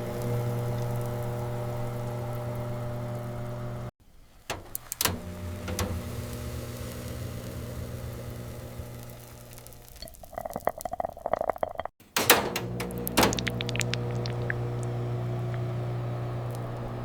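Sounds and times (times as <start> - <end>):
microwave oven humming: 0.0 - 3.9, 4.5 - 10.0, 12.2 - 17.0
sharp clicks: 12.2 - 15.7.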